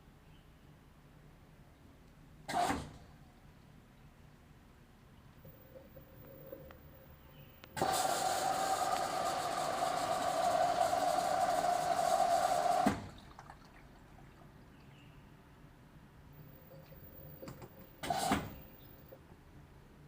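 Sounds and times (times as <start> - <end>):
drain pump humming: 5.4 - 15.0
pump cutting off click: 7.6 - 13.1
water rushing: 7.8 - 14.6.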